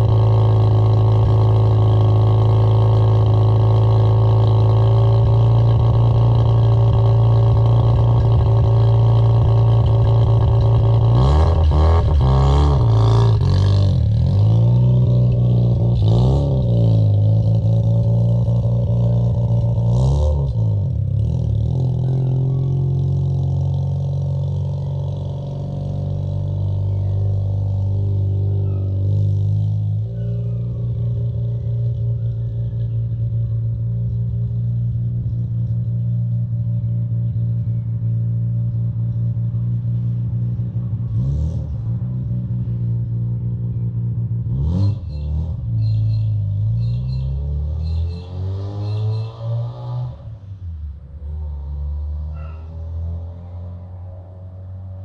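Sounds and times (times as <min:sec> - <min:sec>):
engine throttle blips: 0:00.0 - 0:41.2.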